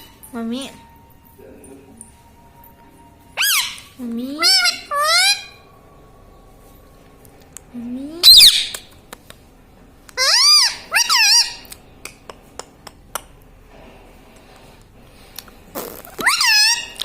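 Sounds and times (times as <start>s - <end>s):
parrot shrill calls: 3.3s - 5.7s, 8.2s - 8.9s, 10.2s - 11.7s, 16.1s - 17.0s.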